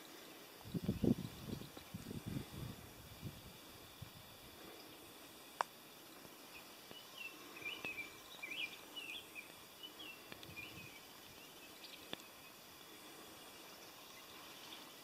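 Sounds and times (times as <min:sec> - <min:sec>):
faint outdoor hiss: 0:00.0 - 0:15.0
songbird warbling chirps: 0:06.0 - 0:15.0.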